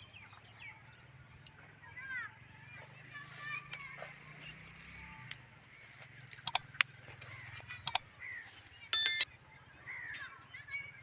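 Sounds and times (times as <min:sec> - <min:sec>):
sharp clicks: 0:09.0 - 0:09.3.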